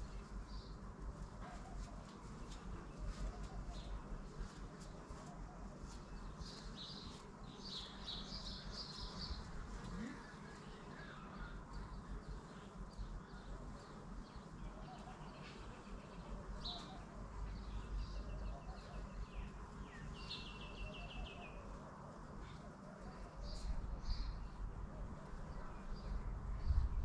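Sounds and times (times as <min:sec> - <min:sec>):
small birds chirping: 0:00.0 - 0:27.0
steady low rumble: 0:23.5 - 0:27.0.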